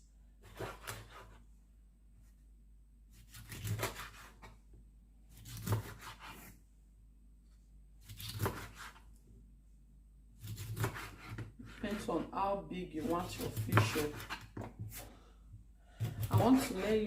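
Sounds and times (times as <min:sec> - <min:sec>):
knife cutting through fish: 0:05.4 - 0:06.6, 0:08.0 - 0:09.0, 0:10.4 - 0:12.0, 0:16.0 - 0:17.0.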